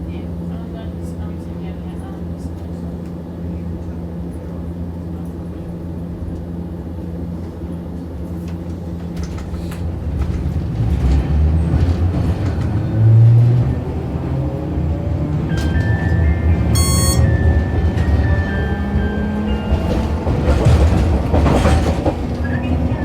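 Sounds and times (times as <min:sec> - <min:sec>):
streetcar motor and gear hum: 0:00.0 - 0:23.0
wheels clicking on rails: 0:08.3 - 0:14.7, 0:15.4 - 0:23.0.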